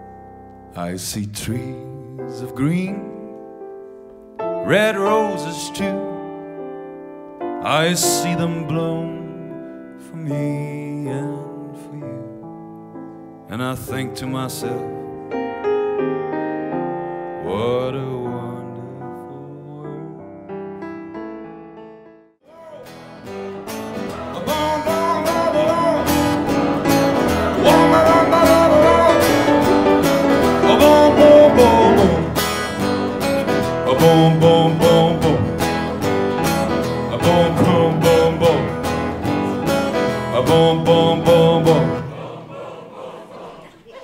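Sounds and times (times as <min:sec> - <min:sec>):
person singing: 0:00.8 - 0:03.2, 0:04.6 - 0:06.2, 0:07.6 - 0:12.4, 0:17.4 - 0:20.4, 0:22.4 - 0:44.0
live band music: 0:22.7 - 0:40.7.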